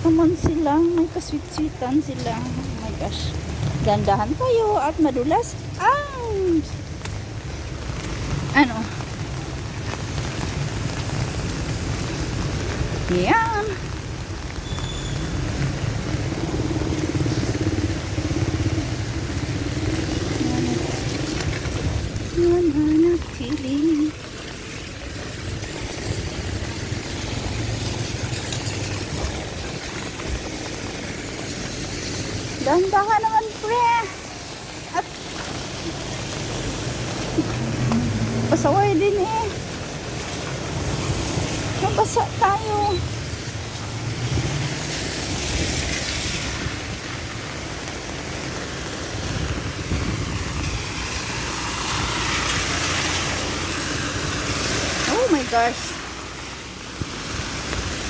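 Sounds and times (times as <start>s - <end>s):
passing traffic rumble: 0.0s - 58.0s
rain and wet road hiss: 0.0s - 58.0s.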